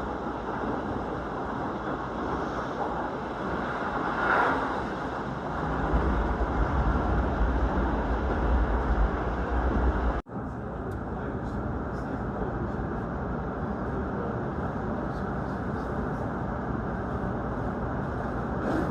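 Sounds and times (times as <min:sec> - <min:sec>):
train wheels rumbling on rail: 0:00.0 - 0:10.2.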